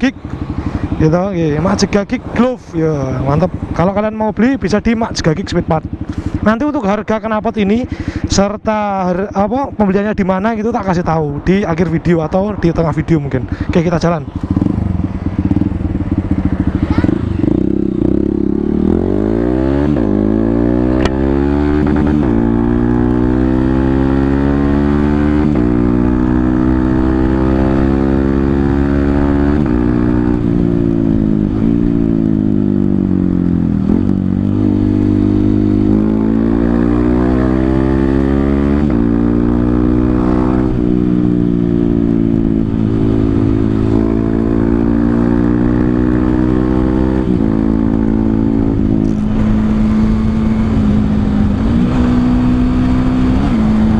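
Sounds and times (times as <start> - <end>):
motorcycle engine revving through gears: 14.3 - 53.9.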